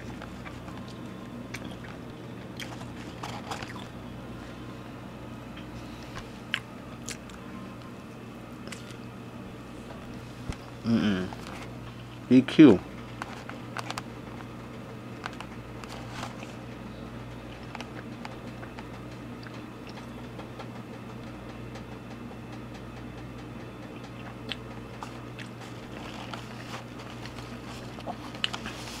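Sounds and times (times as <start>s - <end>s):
person chewing: 0.0s - 3.9s, 6.4s - 7.4s, 8.6s - 9.0s, 24.0s - 29.0s.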